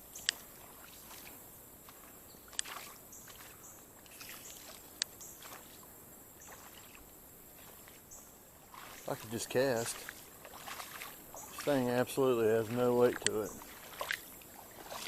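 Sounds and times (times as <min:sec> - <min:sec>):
wading splashes in water: 0:00.0 - 0:15.0
sharp clicks: 0:13.1 - 0:13.5.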